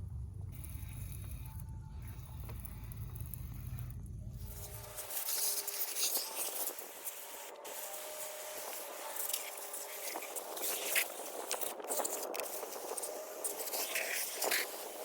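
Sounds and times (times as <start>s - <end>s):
steady low rumble: 0.0s - 5.1s
liquid spray hissing: 4.5s - 15.0s.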